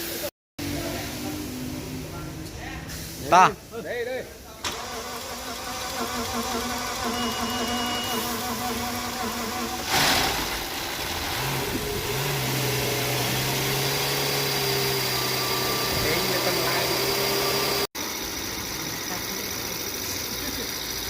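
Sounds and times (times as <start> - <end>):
engine running: 4.6 - 21.0.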